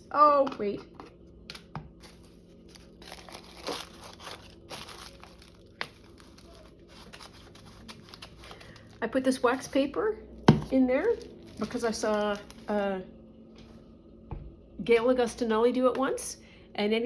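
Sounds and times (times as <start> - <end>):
wax paper crinkling: 1.7 - 12.8.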